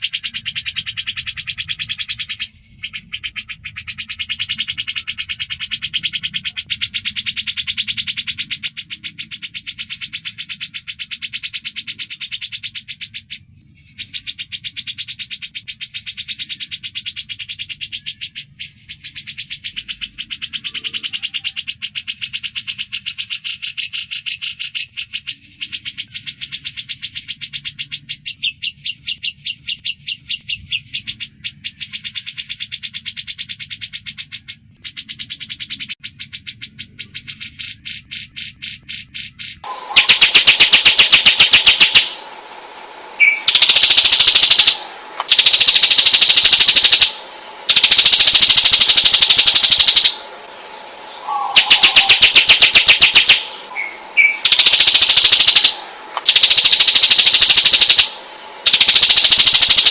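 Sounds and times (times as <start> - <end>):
buzzy bird trills: 0.0 - 59.9
rapid rattling bird trills: 0.0 - 59.9.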